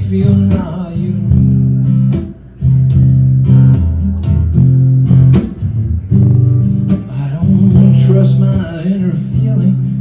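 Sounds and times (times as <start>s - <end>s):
guitar strumming chords: 0.0s - 10.0s
sustained low bass notes: 0.0s - 10.0s.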